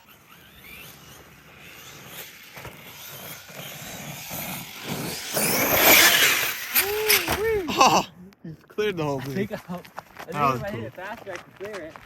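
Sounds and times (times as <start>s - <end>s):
electric toy truck motor whining: 0.0s - 8.0s.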